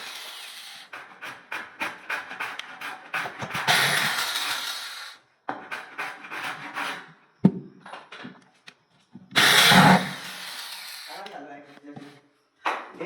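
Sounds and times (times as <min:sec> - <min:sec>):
scraping strokes on wood: 0:00.0 - 0:07.3.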